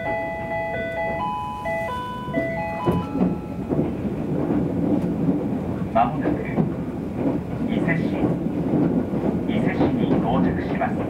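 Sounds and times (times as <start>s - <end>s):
bell-like chime melody: 0.0s - 3.8s
train running noise: 0.0s - 11.0s
train wheels clacking: 0.0s - 11.0s.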